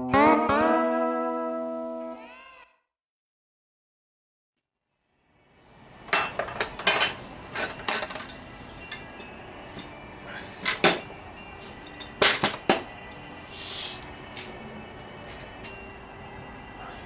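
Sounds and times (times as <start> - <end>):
metal tools clinking: 6.2 - 8.4.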